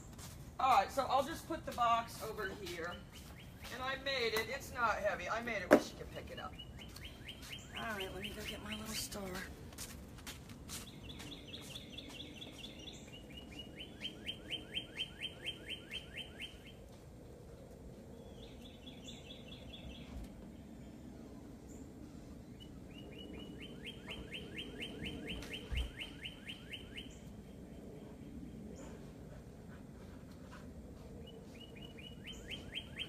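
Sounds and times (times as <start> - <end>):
bird singing whistled notes: 6.4 - 9.0, 10.8 - 16.8, 22.6 - 27.3, 31.5 - 33.0.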